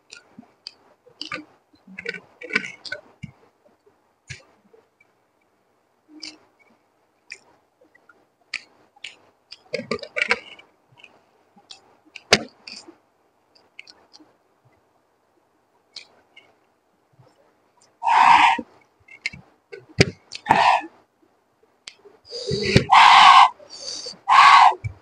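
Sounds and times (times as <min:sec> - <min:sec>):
mouth clicks and smacks chewing: 0:06.2 - 0:06.4, 0:07.3 - 0:14.3.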